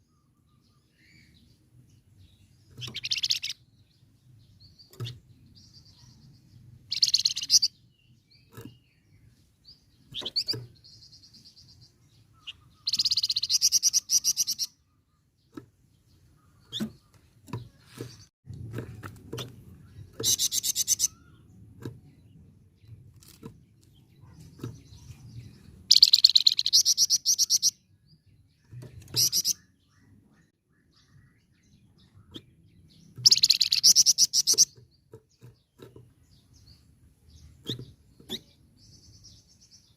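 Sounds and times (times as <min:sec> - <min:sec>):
songbird rattling trills: 0:02.7 - 0:03.6, 0:06.8 - 0:08.9, 0:10.0 - 0:14.8, 0:19.4 - 0:21.4, 0:25.8 - 0:27.8, 0:33.1 - 0:36.8.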